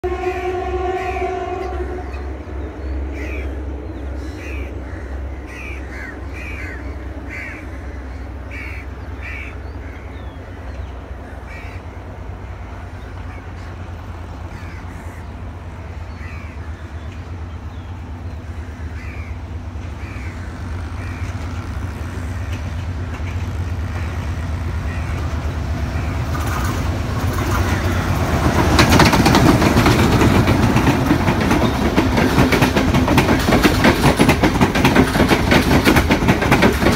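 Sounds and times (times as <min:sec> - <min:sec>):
diesel train rumbling past: 0:00.0 - 0:36.9
bird calling: 0:12.8 - 0:28.4.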